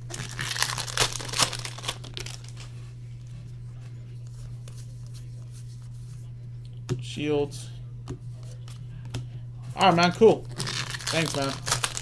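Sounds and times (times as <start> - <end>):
cards and foil wrappers crinkling: 0.0 - 2.7, 9.8 - 12.0
low electrical hum: 0.0 - 12.0.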